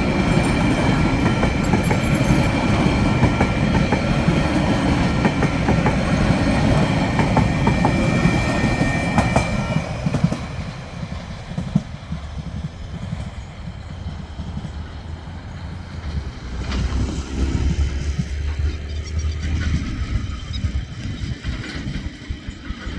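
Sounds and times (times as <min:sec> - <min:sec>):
wheels clicking over rail joints: 0:00.0 - 0:14.8
freight train wagons rolling past: 0:00.0 - 0:22.9.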